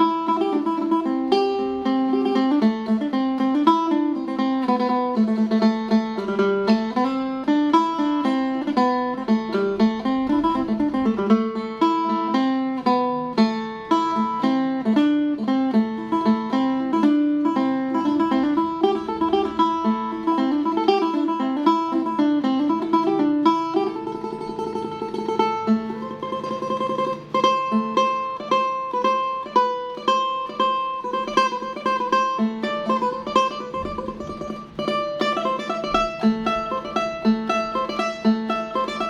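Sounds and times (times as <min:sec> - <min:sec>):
plucked lute melody: 0:00.0 - 0:39.0.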